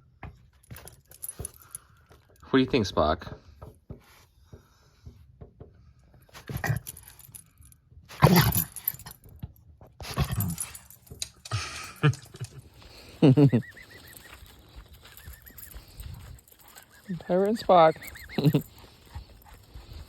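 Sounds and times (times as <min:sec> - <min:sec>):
dog whining: 0:16.5 - 0:19.6.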